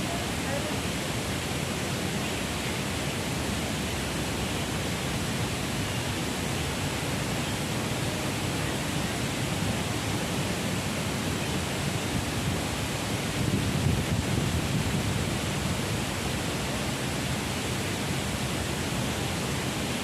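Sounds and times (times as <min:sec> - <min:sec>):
strong wind buffeting microphone: 0:11.7 - 0:16.7.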